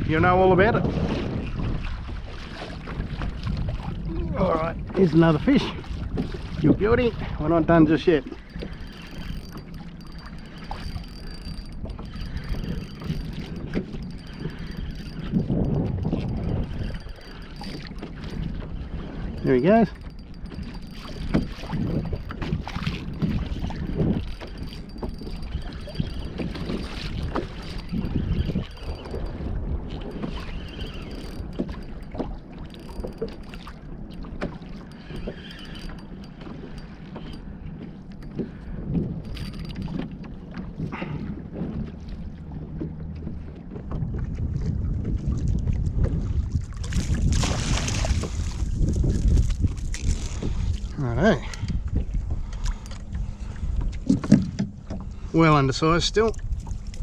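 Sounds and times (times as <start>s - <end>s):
water lapping against kayak: 0.0s - 57.0s
wind buffeting microphone: 0.0s - 57.0s
light splashes and knocks: 29.4s - 50.9s, 51.9s - 55.1s.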